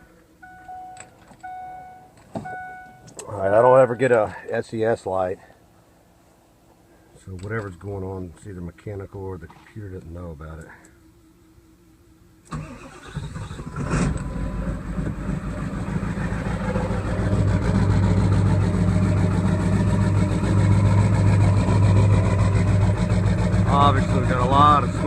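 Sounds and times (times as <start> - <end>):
diesel engine cranking: 12.5 - 25.0
diesel engine rough idle: 13.6 - 25.0.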